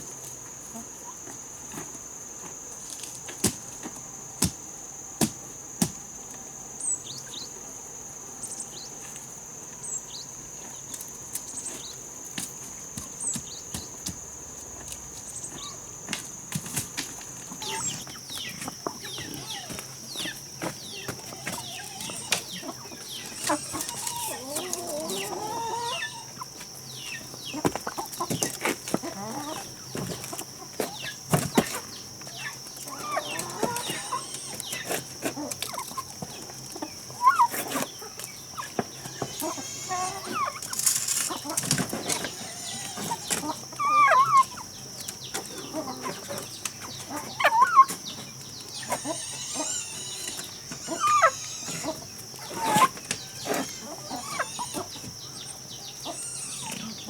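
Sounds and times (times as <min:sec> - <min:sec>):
chickens clucking: 0:14.9 - 0:57.0
high-pitched insect drone: 0:17.6 - 0:27.5, 0:32.4 - 0:35.0, 0:38.6 - 0:44.6, 0:48.7 - 0:57.0.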